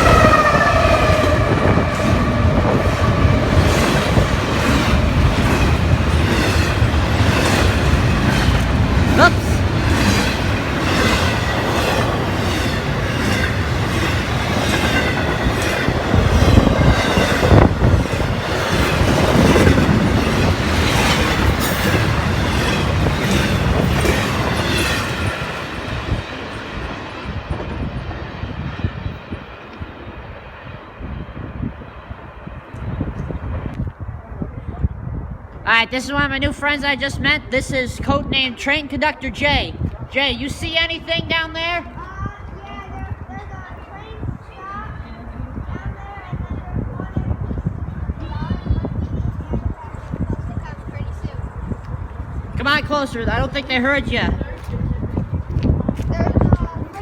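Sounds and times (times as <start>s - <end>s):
train horn: 0.0s - 4.4s
train wheels clickety-clack: 0.0s - 29.9s.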